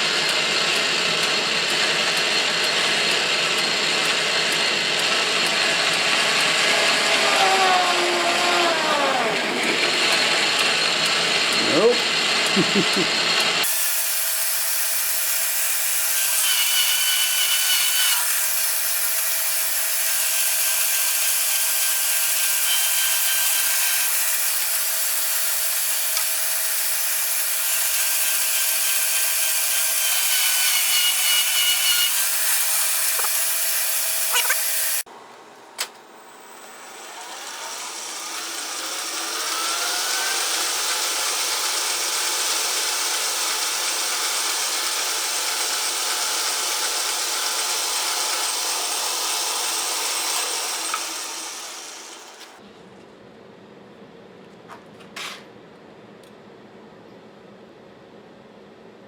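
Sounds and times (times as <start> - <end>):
lathe spinning up whine: 0.0 - 14.2, 36.4 - 52.6
lathe cutting metal: 0.0 - 35.0, 36.5 - 52.6
lathe hum: 0.0 - 35.1, 36.4 - 52.6
high squeal: 6.2 - 11.0.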